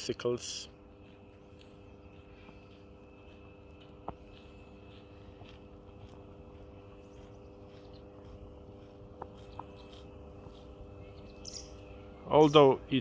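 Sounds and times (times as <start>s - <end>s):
steady low hum: 0.0s - 13.0s
waterbird calls: 10.8s - 12.7s.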